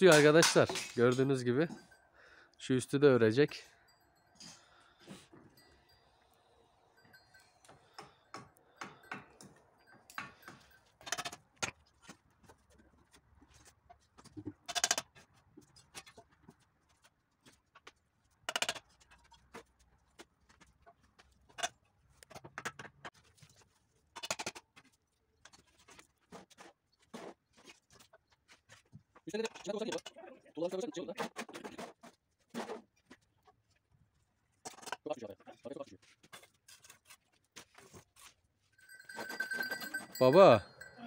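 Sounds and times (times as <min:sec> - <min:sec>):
trowel scraping: 0:36.0 - 0:38.4.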